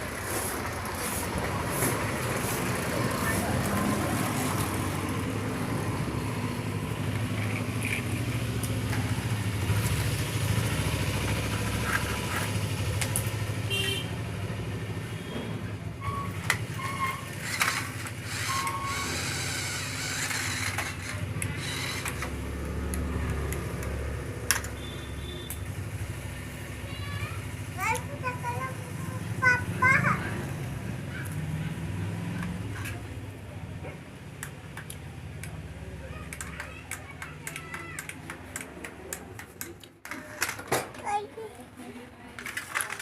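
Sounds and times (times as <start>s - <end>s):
motor vehicle rumble: 0.0s - 43.0s
clicks and knocks: 36.2s - 41.1s.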